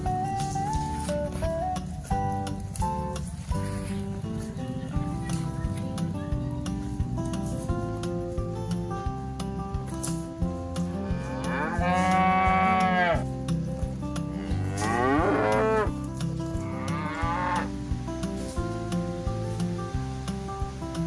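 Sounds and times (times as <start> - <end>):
acoustic guitar music: 0.0 - 21.0
cattle mooing: 11.0 - 13.3, 14.3 - 16.0, 16.6 - 17.8.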